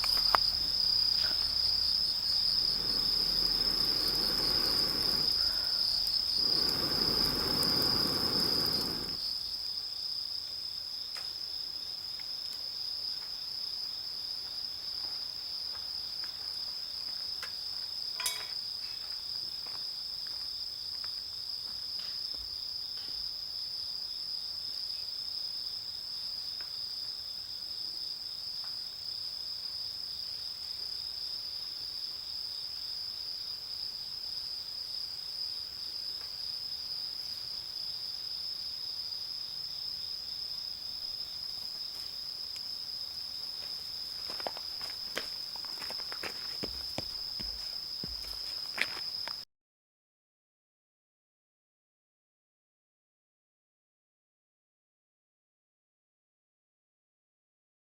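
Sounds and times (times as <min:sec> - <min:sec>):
rushing noise: 0:00.0 - 0:09.2
insects trilling: 0:00.0 - 0:26.9, 0:29.1 - 0:49.4.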